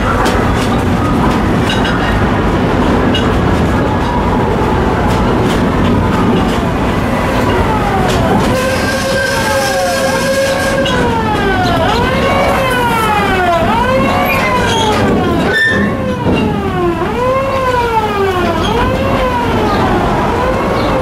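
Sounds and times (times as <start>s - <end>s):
amusement park train rumbling: 0.0s - 21.0s
high squeal sliding in pitch: 14.1s - 15.9s.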